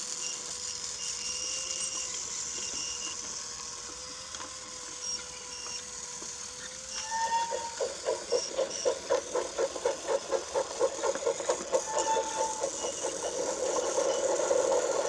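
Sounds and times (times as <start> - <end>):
toy train motor hum: 0.0 - 15.0
rhythmic pulsing: 7.6 - 15.0.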